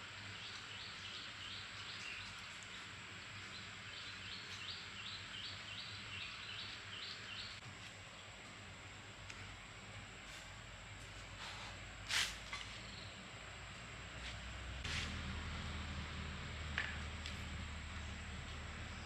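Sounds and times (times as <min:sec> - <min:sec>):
bird chirping: 0:00.4 - 0:07.6.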